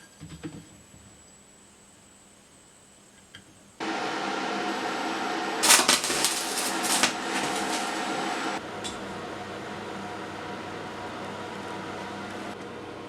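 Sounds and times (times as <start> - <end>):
loud rasping bursts: 5.6 - 8.6.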